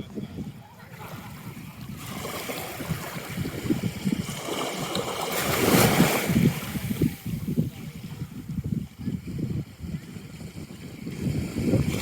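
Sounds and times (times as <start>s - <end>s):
wind buffeting microphone: 0.0s - 12.0s
small waves washing on shore: 0.1s - 12.0s
wave breaking: 0.9s - 8.0s.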